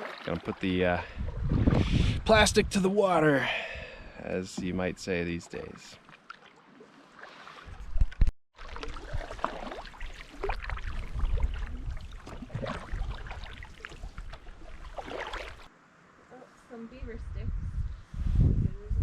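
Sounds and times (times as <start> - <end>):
paddle splashing in water: 0.0 - 0.6, 5.5 - 15.7.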